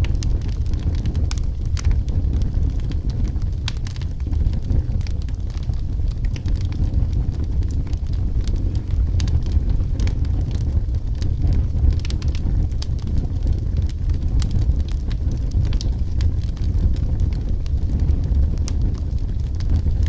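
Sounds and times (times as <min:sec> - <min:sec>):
burning wood crackling: 0:00.0 - 0:20.0
fire flames rumbling: 0:00.0 - 0:20.0.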